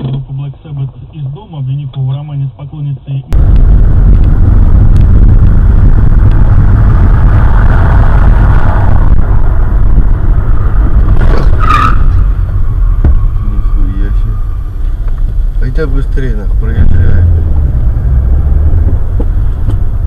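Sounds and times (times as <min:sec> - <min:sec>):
car rumbling: 0:00.0 - 0:20.0
high-pitched squeal: 0:03.4 - 0:18.7.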